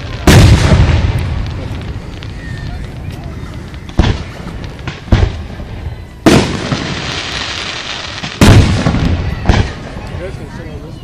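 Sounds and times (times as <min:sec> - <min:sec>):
fireworks crackling hiss: 0:00.0 - 0:11.0.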